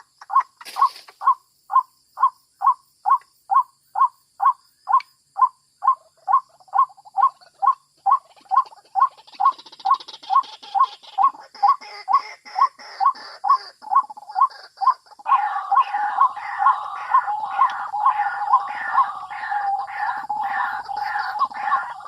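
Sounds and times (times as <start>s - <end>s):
busier layer of bird calls: 0.0s - 22.0s
waterhen calling: 5.8s - 22.0s.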